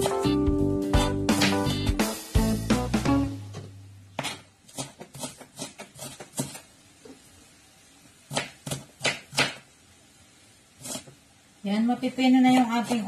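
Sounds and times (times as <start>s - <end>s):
knife chopping on cutting board: 1.0s - 1.7s, 4.2s - 6.6s, 8.3s - 9.6s.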